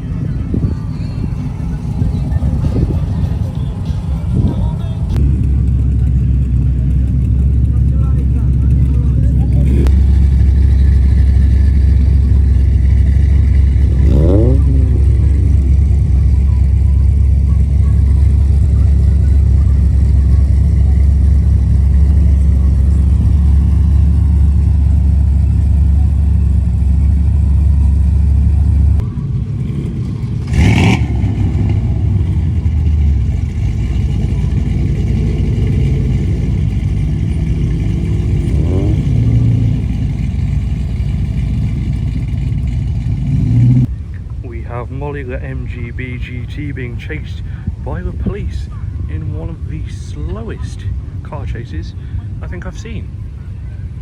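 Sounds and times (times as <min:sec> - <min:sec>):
car engines rumbling: 0:00.0 - 0:54.0.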